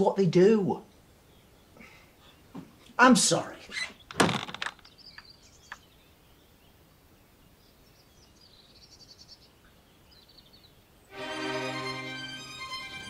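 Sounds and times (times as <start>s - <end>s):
bird chirps and twitters: 3.6s - 10.8s.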